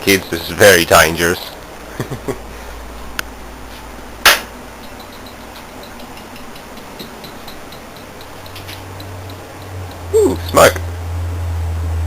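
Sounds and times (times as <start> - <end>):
low mains hum: 0.0 - 12.0
faint ticking: 4.8 - 10.6.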